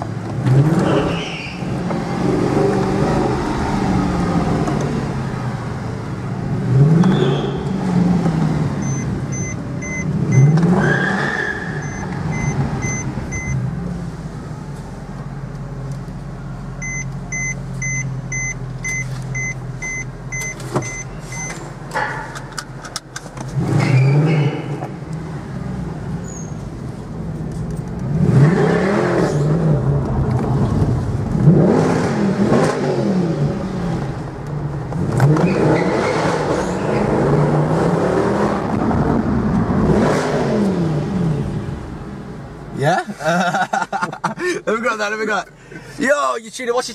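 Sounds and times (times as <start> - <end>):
car engine revving: 0.0 - 14.6, 28.0 - 42.8
thin repeating beep: 8.8 - 10.6.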